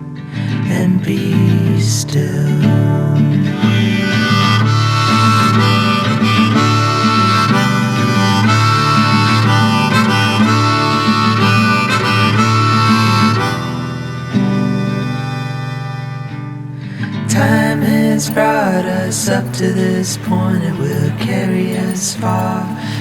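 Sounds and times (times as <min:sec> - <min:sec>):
instrumental music melody: 0:03.6 - 0:23.0.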